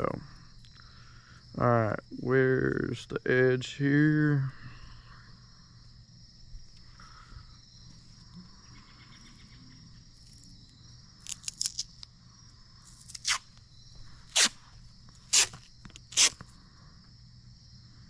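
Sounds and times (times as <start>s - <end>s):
tape ripping off roll: 13.0s - 13.6s, 14.3s - 14.6s, 15.2s - 16.5s.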